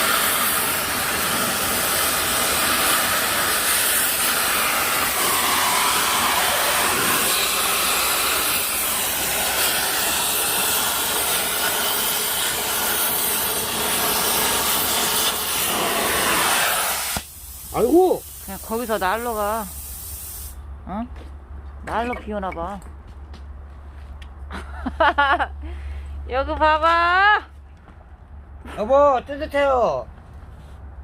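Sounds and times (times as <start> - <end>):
cutting torch hissing: 0.0 - 20.6.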